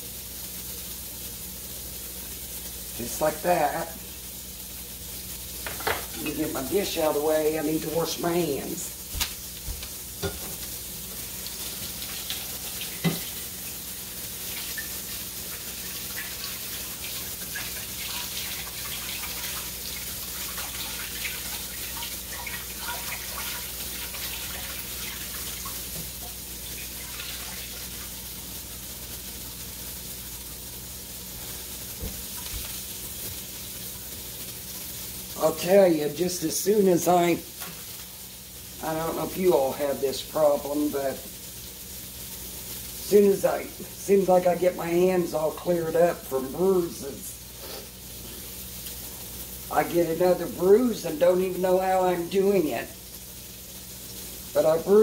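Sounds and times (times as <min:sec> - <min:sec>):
steaks sizzling in a skillet: 0:00.0 - 0:55.0.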